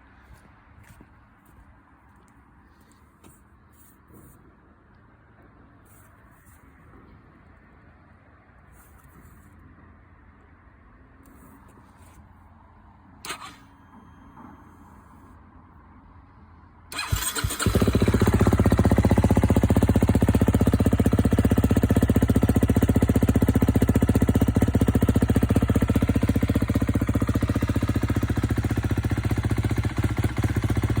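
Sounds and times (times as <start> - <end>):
engine cranking: 13.2 - 13.7, 16.9 - 18.6
motorcycle engine idling: 16.9 - 31.0.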